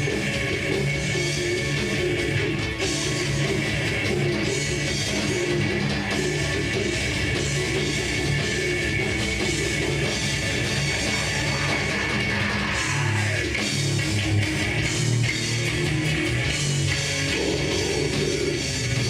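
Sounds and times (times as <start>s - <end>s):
heavy metal band playing: 0.0s - 19.0s.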